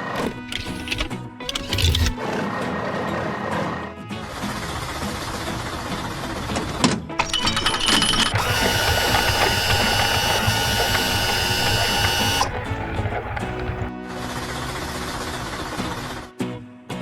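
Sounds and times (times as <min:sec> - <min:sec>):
machine whirring: 0:00.0 - 0:02.2, 0:07.2 - 0:13.9
background music: 0:00.0 - 0:17.0.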